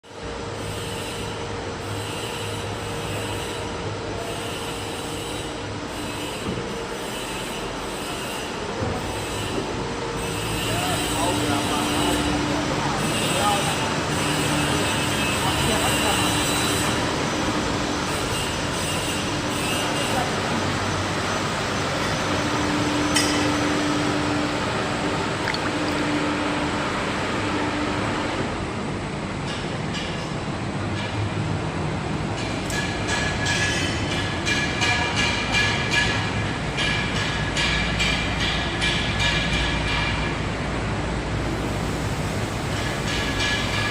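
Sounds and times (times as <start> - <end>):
machinery hum and hiss: 0.0 - 43.9.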